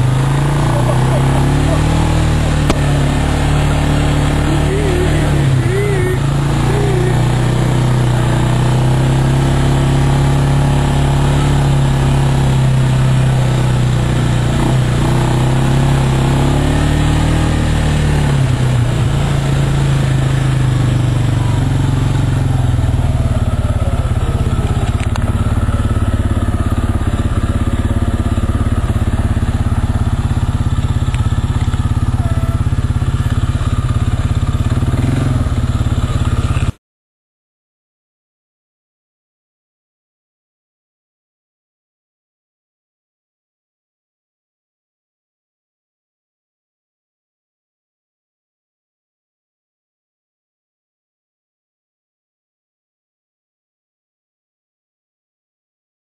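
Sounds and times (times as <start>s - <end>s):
off-road vehicle engine running: 0.0s - 36.8s.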